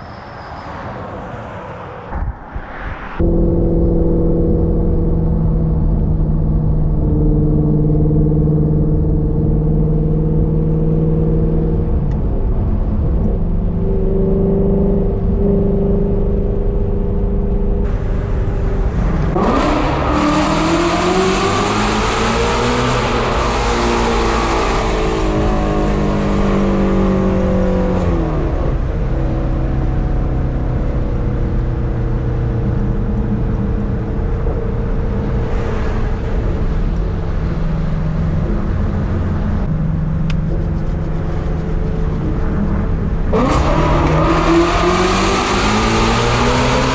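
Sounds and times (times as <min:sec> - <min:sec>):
car engine revving: 0:13.9 - 0:46.9.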